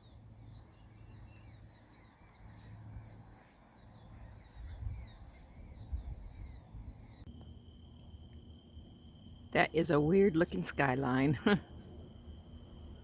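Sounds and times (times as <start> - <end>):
insect chorus drone: 0.0 - 13.0
wavering insect chirps: 0.0 - 13.0
wind rumble on microphone: 0.4 - 7.3.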